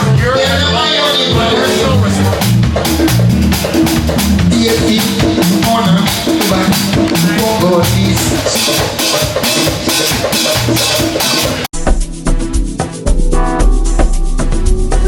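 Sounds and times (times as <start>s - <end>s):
background music with drum beat: 0.0s - 15.0s.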